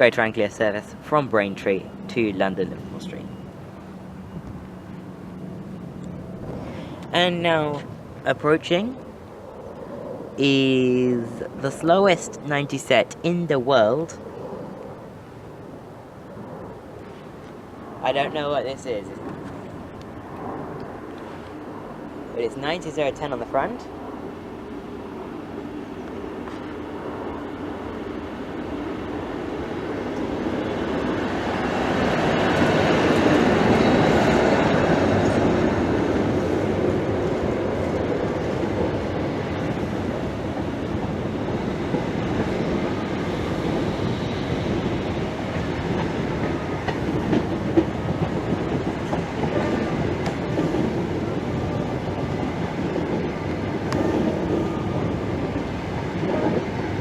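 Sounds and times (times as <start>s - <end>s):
train rumbling past: 0.0s - 57.0s
wheels clicking over rail joints: 29.6s - 57.0s.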